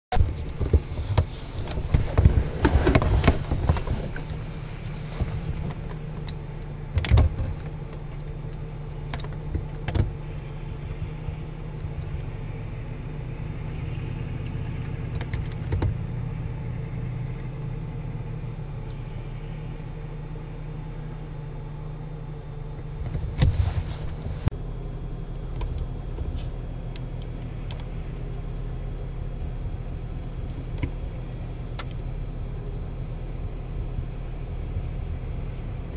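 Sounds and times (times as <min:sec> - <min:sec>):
knocks and clatters: 0:00.1 - 0:08.3
car engine low hum: 0:00.1 - 0:35.9.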